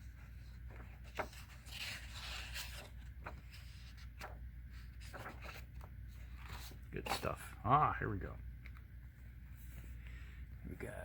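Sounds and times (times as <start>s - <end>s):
paper rustling and sliding: 0.0s - 7.6s.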